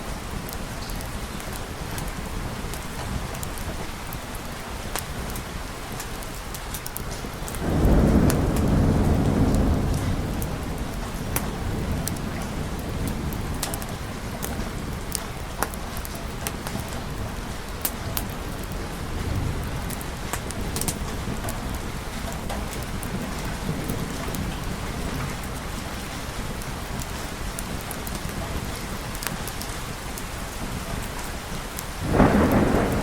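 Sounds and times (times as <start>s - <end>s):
steady rain: 0.0s - 33.0s
low rumble of thunder: 7.6s - 30.0s, 31.8s - 33.0s.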